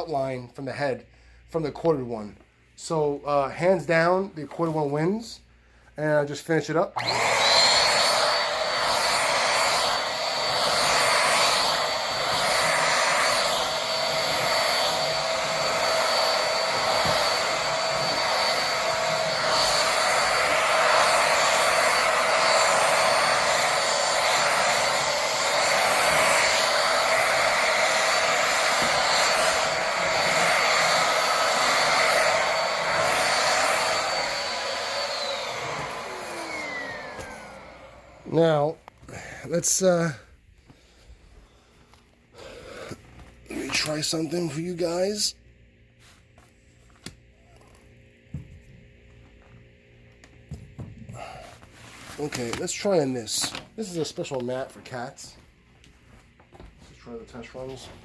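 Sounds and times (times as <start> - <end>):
vacuum cleaner motor whine: 7.0 - 38.7, 42.7 - 45.3, 50.2 - 54.5.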